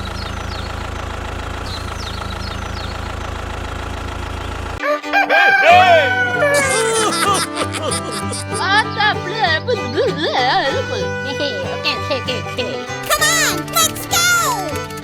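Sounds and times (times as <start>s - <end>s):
engine idling rumble: 0.0s - 4.8s
rooster crowing: 4.8s - 8.2s
music: 4.8s - 15.0s.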